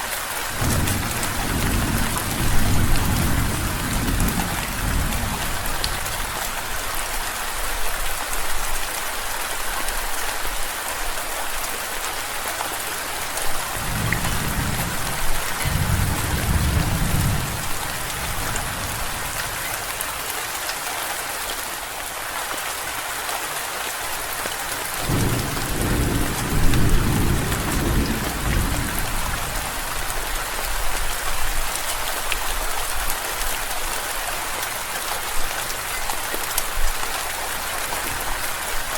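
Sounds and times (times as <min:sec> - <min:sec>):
steady rain hiss: 0:00.0 - 0:38.9
thunder rumbling: 0:00.6 - 0:06.1, 0:13.8 - 0:19.9, 0:25.1 - 0:29.7.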